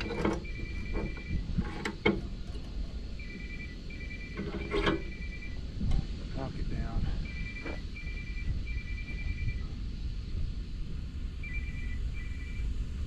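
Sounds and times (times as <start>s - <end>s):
metal parts knocking: 0.0s - 2.8s
mobile phone ringing: 0.4s - 1.4s, 3.2s - 5.6s, 7.3s - 9.7s, 11.4s - 12.6s.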